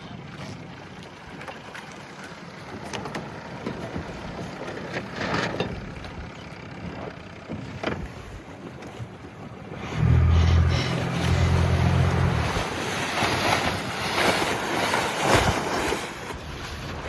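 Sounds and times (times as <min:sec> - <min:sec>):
water washing around boat: 0:00.0 - 0:17.0
low steady hum: 0:09.8 - 0:12.9.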